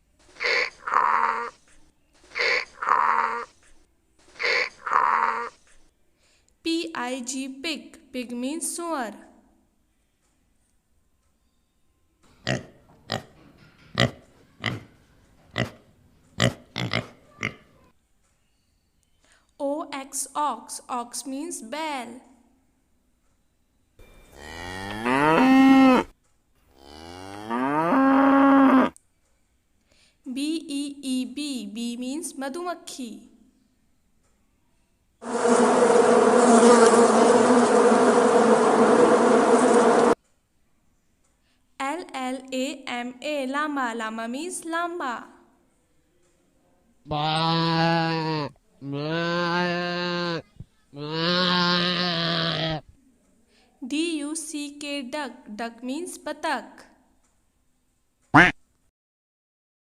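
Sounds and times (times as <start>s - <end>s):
pig grunting: 14.0s - 14.9s, 16.4s - 17.7s, 47.1s - 52.8s
bees buzzing: 35.2s - 40.2s.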